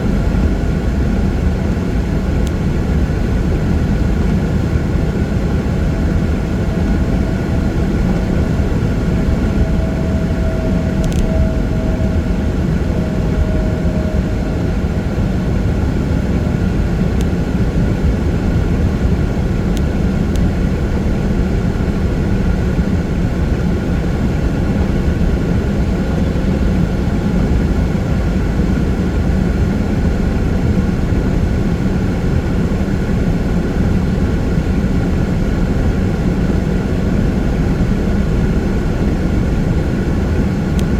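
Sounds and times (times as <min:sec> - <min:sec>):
faint held tone: 0:05.9 - 0:15.8
faint clicks: 0:11.0 - 0:11.4.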